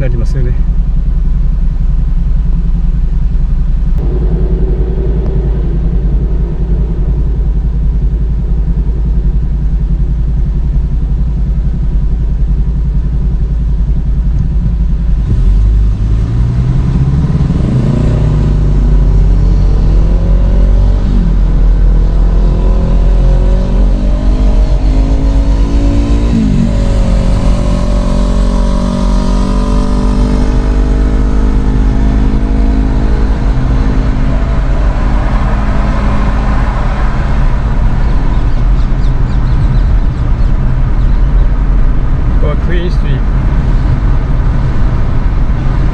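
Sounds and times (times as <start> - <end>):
bus engine rumbling: 0.0 - 45.9.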